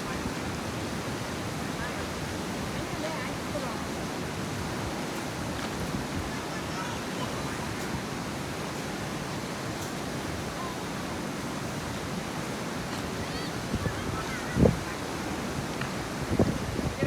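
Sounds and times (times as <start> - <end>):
rushing outdoor noise: 0.0 - 17.0.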